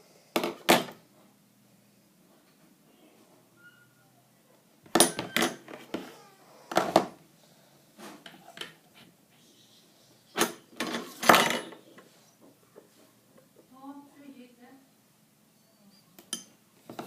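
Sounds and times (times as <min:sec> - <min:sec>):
hard objects clattering: 0:10.3 - 0:11.9.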